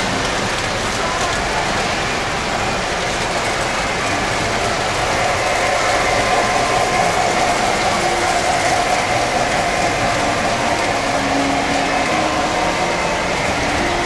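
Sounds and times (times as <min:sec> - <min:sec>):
model trains whirring on track: 0:00.0 - 0:14.0.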